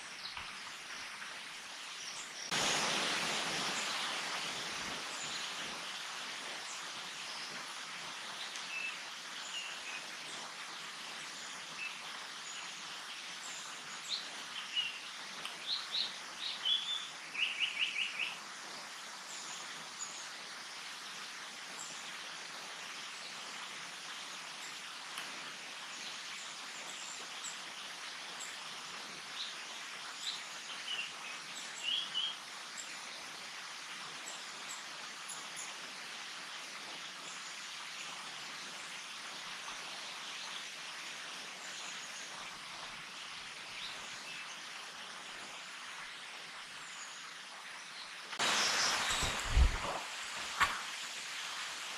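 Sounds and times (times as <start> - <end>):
steady background hiss: 0.0 - 51.9
songbirds calling: 5.0 - 20.4.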